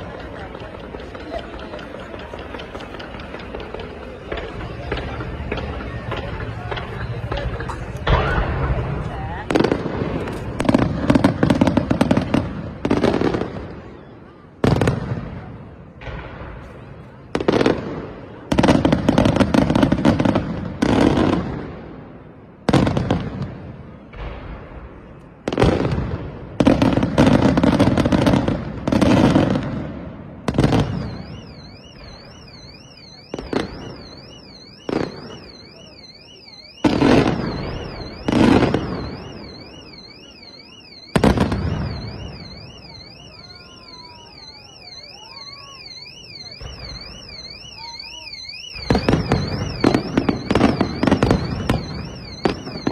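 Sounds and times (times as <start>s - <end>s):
fireworks booming: 0.0s - 52.9s
car alarm warbling: 30.6s - 52.9s.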